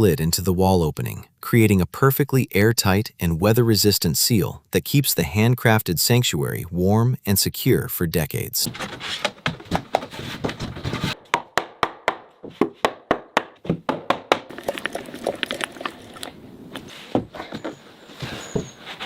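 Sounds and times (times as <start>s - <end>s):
scraping rustle: 16.8s - 19.0s.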